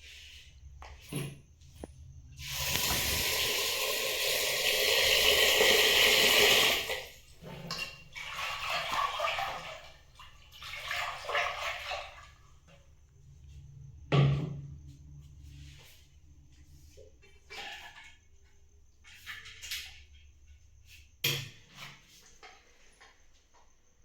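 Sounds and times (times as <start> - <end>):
water running from tap: 2.4 - 12.4
soft water splashing: 7.2 - 12.6.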